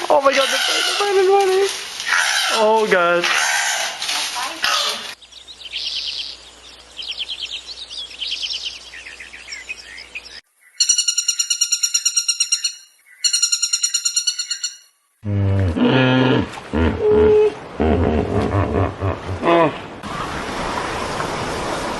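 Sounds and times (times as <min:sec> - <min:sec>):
small birds chirping: 0:00.0 - 0:14.9
pulsing high-pitched calls: 0:04.6 - 0:15.0
deep voiced sound: 0:15.2 - 0:19.8.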